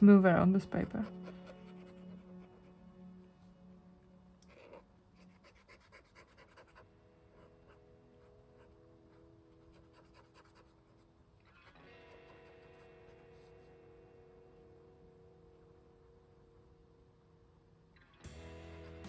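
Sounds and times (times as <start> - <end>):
faint music of held chords: 0.0 - 19.0
marker scratching on paper: 0.7 - 2.5, 4.5 - 6.8.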